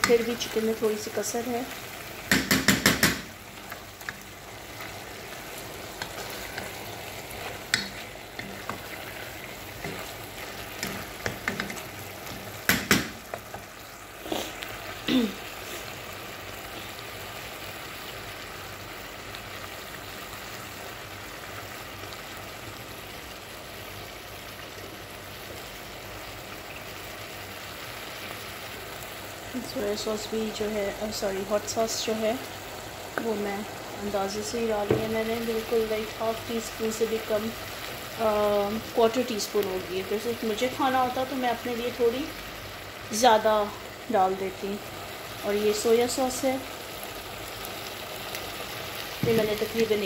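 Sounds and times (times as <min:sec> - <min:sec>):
food sizzling in a pot: 0:00.0 - 0:50.0
wooden spatula knocking on pot: 0:02.3 - 0:03.3, 0:12.4 - 0:13.6, 0:34.8 - 0:35.2.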